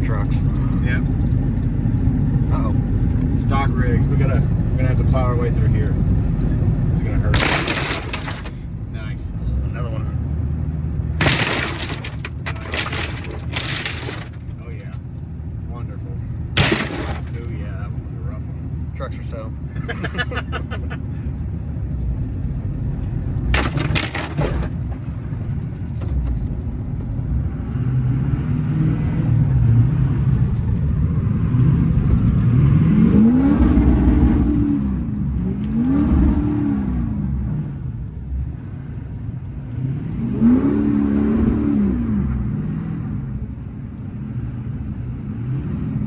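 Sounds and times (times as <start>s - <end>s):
short sharp clatter: 7.4s - 8.6s, 11.2s - 14.6s, 16.6s - 17.5s, 23.6s - 25.2s
diesel engine revving: 27.2s - 38.9s, 39.6s - 43.4s.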